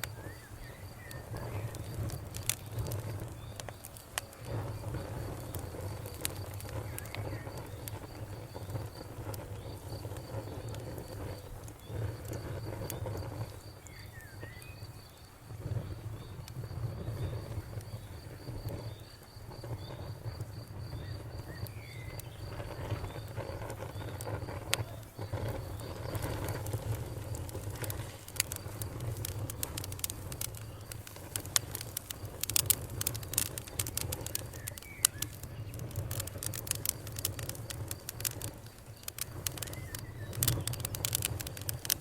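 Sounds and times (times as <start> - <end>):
campfire crackling and popping: 0.0 - 42.0
bird chirp: 0.1 - 2.0, 20.9 - 26.6, 33.8 - 36.2, 39.0 - 41.0.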